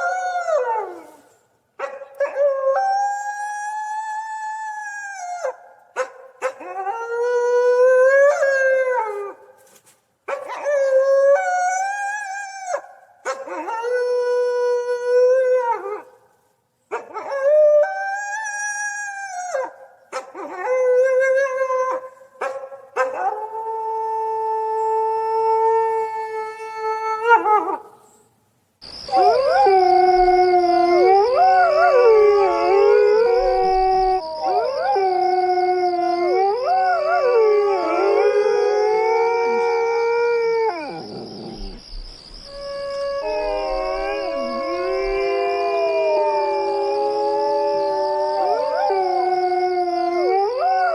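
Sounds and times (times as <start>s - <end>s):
coyotes howling: 0.0s - 1.3s, 28.9s - 50.9s.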